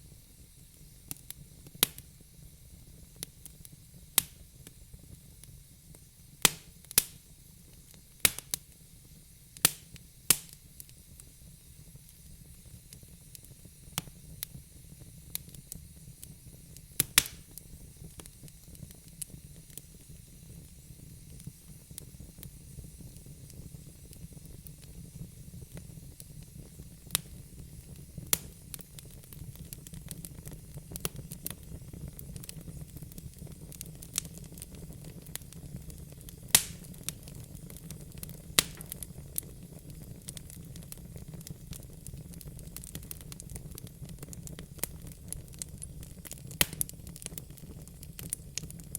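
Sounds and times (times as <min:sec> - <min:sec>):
low rumble of flames: 0:00.0 - 0:48.9
fire pops and snaps: 0:00.5 - 0:02.2, 0:03.0 - 0:04.8, 0:05.4 - 0:08.8, 0:09.6 - 0:48.9.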